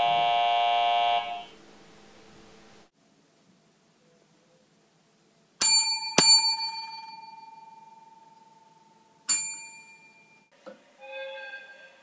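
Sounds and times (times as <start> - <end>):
desk bell ringing: 5.6 - 10.5.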